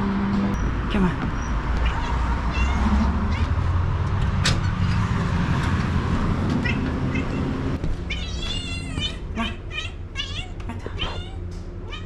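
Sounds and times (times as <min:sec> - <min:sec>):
cat meowing: 0:01.7 - 0:03.7, 0:06.6 - 0:07.5, 0:08.1 - 0:12.0.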